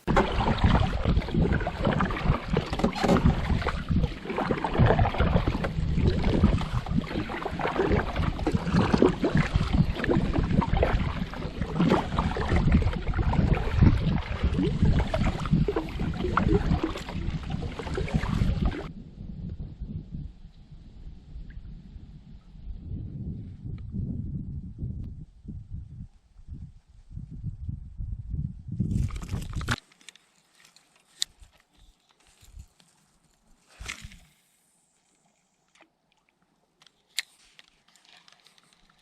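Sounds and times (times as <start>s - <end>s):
water splashing: 0.0s - 19.0s
wind buffeting microphone: 0.0s - 29.8s.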